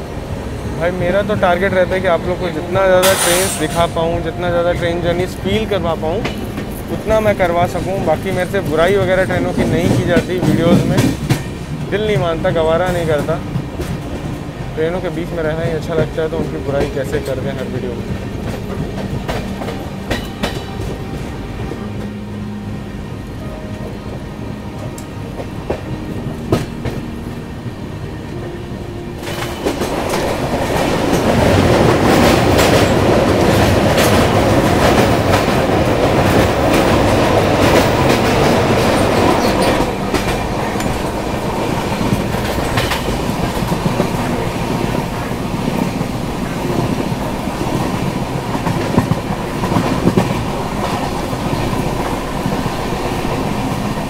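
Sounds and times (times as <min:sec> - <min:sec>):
rushing noise: 0:00.0 - 0:54.0
wheels clicking over rail joints: 0:05.2 - 0:22.2, 0:29.2 - 0:54.0.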